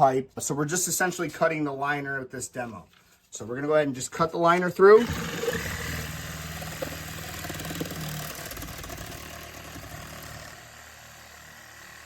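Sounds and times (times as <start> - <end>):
power cutting tool whining: 4.9 - 12.0.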